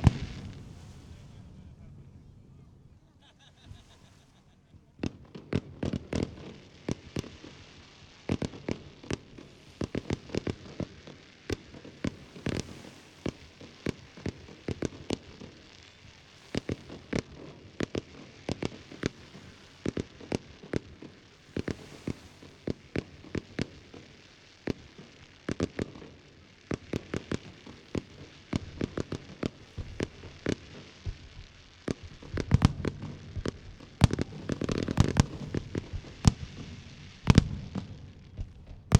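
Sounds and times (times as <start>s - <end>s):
fireworks banging and crackling: 0.0s - 38.9s.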